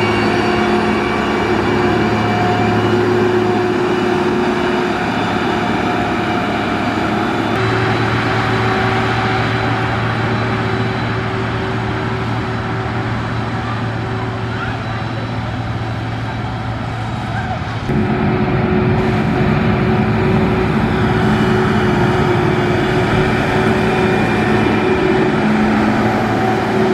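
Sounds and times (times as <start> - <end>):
heavy machine engine running: 0.0 - 26.9.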